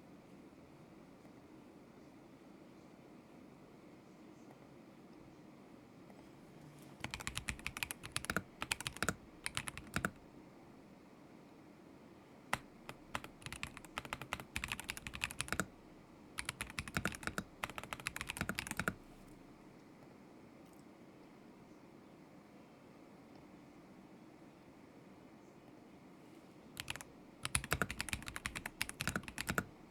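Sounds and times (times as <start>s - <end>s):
mechanical keyboard typing: 7.0s - 10.2s, 12.5s - 15.8s, 16.4s - 19.4s, 26.8s - 29.7s.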